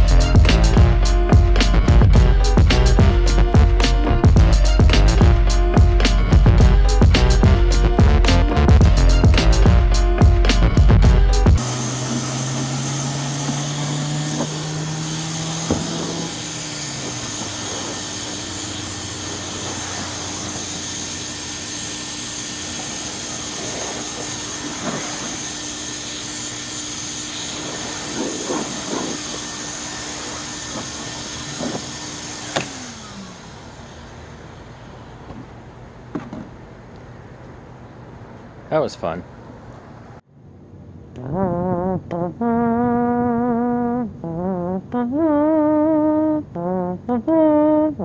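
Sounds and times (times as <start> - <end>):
vacuum cleaner motor hum and whine: 0.0 - 35.5.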